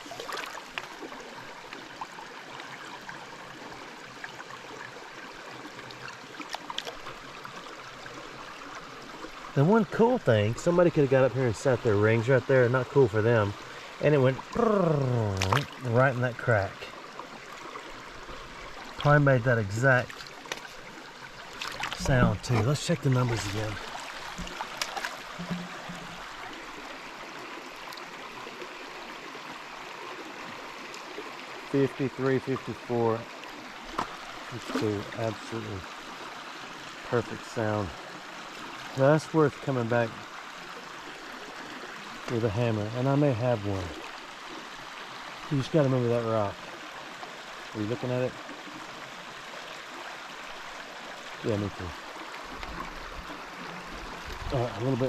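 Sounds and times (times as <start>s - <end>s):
creek water running over rocks: 0.0s - 55.0s.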